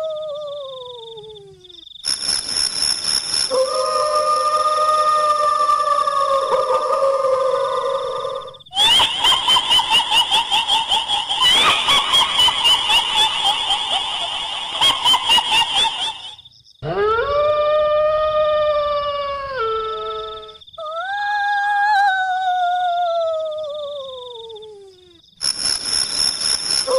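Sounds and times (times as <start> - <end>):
long wailing cry: 0.0 - 1.6, 3.5 - 25.2
high rhythmic cackling laugh: 5.6 - 8.1, 8.7 - 16.4.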